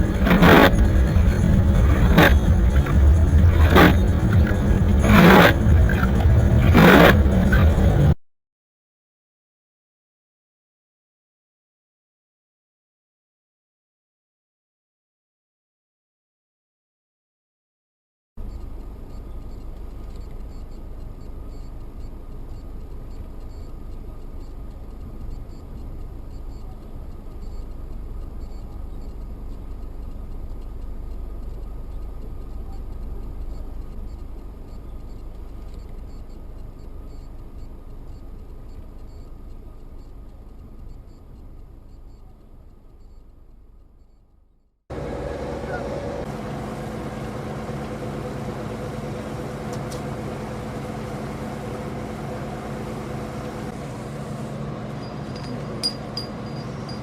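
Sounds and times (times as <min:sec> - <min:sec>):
car road and engine noise: 0:00.0 - 0:08.2, 0:44.9 - 0:57.0.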